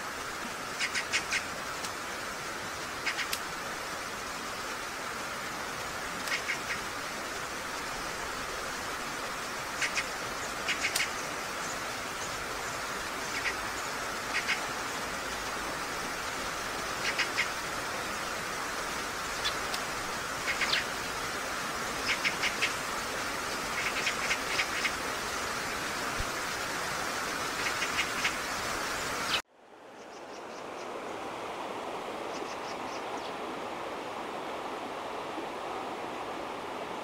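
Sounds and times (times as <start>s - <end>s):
steady outdoor hiss: 0.0s - 37.0s
birds chirping: 20.4s - 21.2s.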